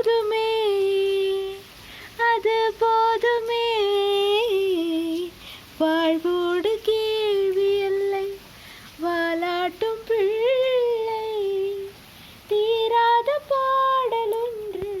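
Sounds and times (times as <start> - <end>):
woman singing unaccompanied: 0.0 - 15.0.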